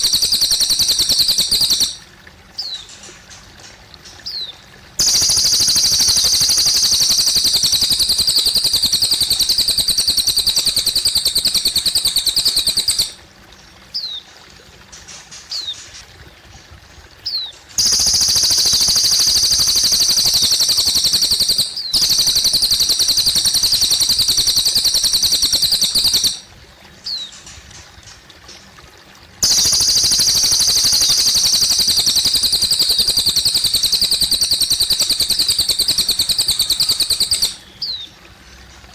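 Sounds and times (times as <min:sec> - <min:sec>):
bird chirps: 0:00.0 - 0:02.0, 0:04.2 - 0:13.2, 0:17.2 - 0:26.4, 0:29.4 - 0:38.1
bird singing rapid high trill: 0:00.0 - 0:02.0, 0:04.3 - 0:13.2, 0:17.3 - 0:26.5, 0:29.4 - 0:38.1
trickling water: 0:00.0 - 0:38.9.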